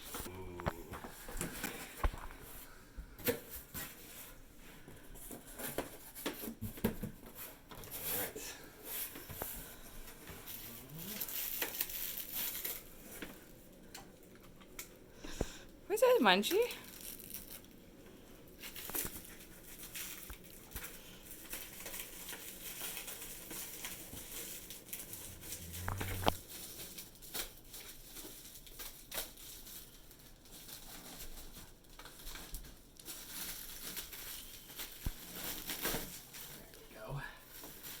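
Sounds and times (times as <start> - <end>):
packaging crinkling and tearing: 10.4 - 13.2, 16.8 - 17.8, 18.6 - 25.8, 26.5 - 36.6.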